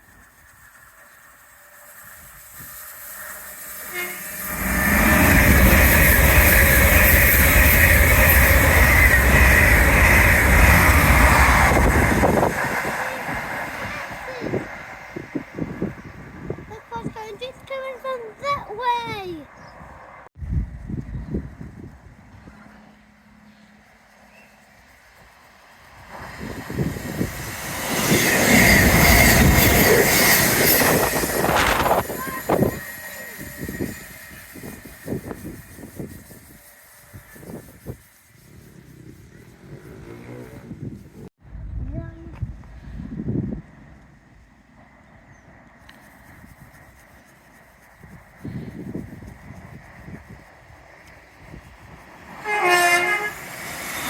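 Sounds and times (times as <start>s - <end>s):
steady high whine: 0.0s - 16.6s, 20.4s - 38.5s
passenger train passing: 0.0s - 41.8s, 48.3s - 54.0s.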